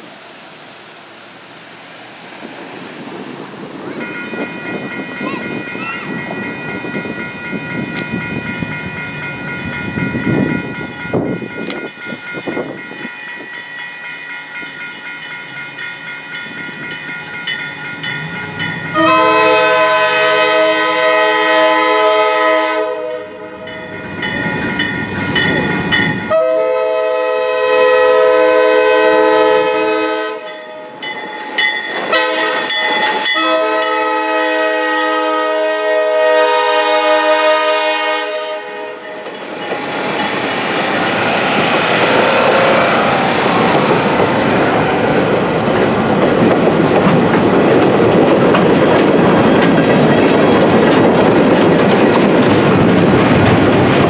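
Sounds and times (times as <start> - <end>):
train rumbling past: 0.0 - 54.0
locomotive horn blasts: 18.9 - 23.8, 26.2 - 30.8, 32.1 - 39.1, 41.9 - 43.3.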